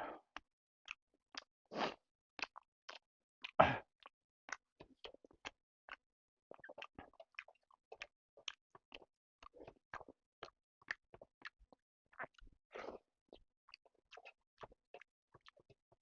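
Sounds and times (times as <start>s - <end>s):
close chewing and biting food: 0.3s - 16.0s.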